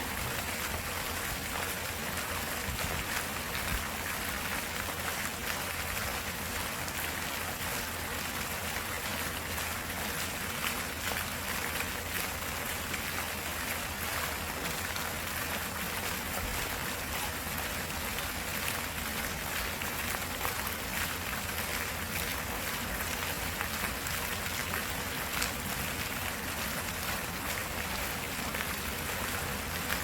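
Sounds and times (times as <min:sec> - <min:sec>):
running water: 0:00.0 - 0:30.0.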